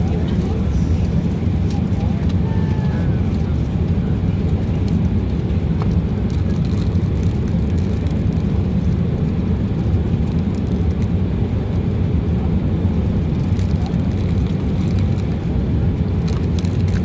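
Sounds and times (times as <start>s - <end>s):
jet cabin roar: 0.0s - 10.2s.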